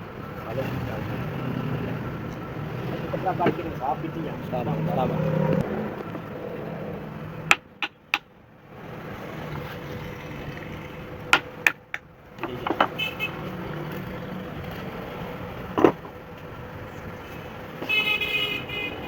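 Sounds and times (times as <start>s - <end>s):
traffic hum: 0.0s - 19.0s
sharp knocks: 7.5s - 8.3s, 11.3s - 13.0s.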